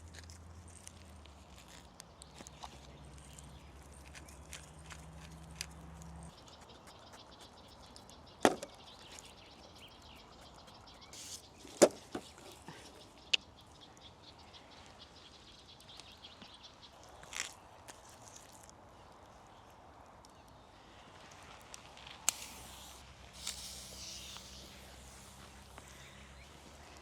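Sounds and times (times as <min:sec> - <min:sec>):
faint outdoor background: 0:00.0 - 0:27.0.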